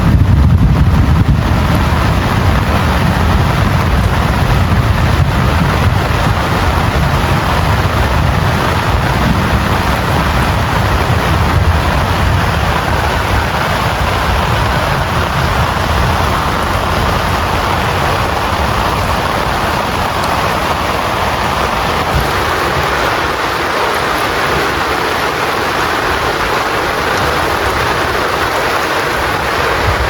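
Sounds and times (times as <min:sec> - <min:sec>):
deep low rumble: 0:00.0 - 0:23.2
heavy rain falling: 0:00.0 - 0:30.0.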